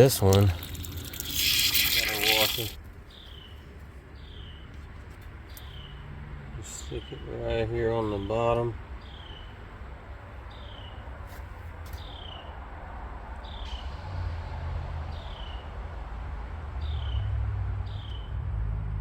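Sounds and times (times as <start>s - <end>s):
bird chirping: 0.0s - 4.8s, 5.4s - 6.1s, 6.7s - 9.6s.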